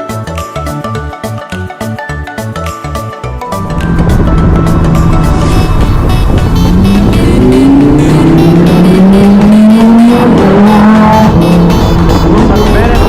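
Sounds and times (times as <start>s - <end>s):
sports car engine accelerating: 3.6s - 13.0s.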